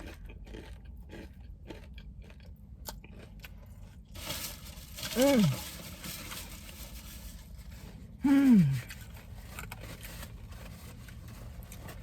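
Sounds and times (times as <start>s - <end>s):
woman moaning: 8.2s - 8.9s.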